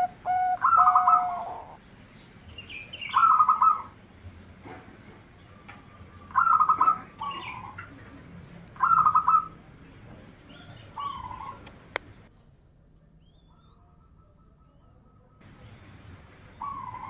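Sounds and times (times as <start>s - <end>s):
dove cooing: 0.0s - 1.8s, 2.9s - 4.0s, 5.4s - 12.3s, 13.4s - 17.0s.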